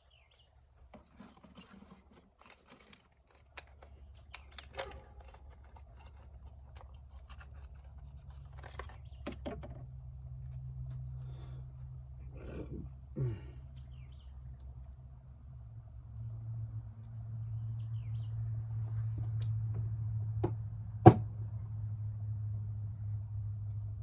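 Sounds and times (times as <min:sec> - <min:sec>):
sharp knock: 0:21.0 - 0:21.2.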